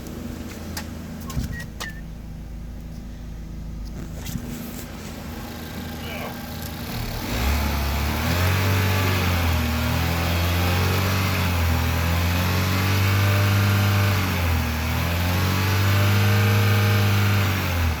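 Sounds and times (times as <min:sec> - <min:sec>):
vehicle engine revving: 0:03.8 - 0:18.0.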